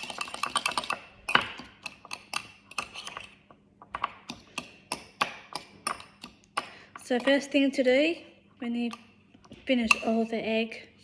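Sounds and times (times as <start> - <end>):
fork scraping a bowl: 1.8 - 3.4.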